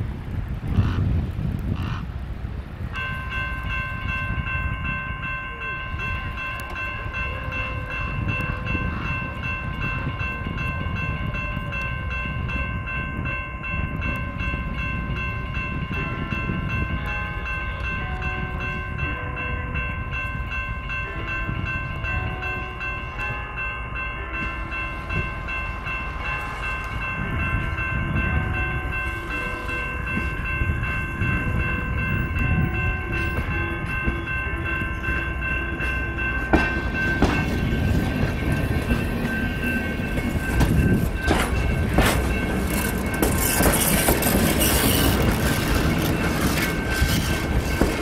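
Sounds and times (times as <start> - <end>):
train rumbling by: 0.0 - 48.0
wheels clacking over rail joints: 25.0 - 48.0.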